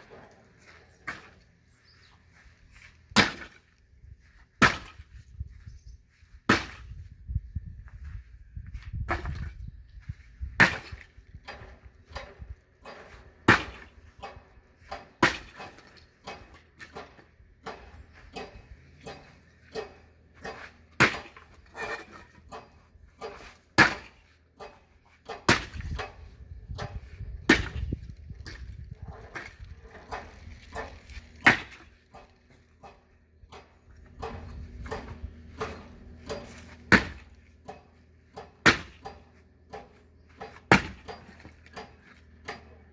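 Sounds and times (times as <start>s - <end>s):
axe chopping firewood: 3.1s - 3.7s, 4.6s - 5.1s, 6.4s - 6.9s, 10.6s - 28.7s, 29.3s - 42.8s.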